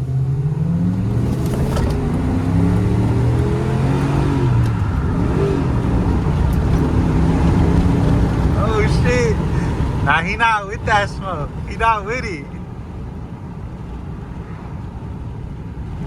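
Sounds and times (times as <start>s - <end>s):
pickup truck engine accelerating: 0.0s - 16.0s.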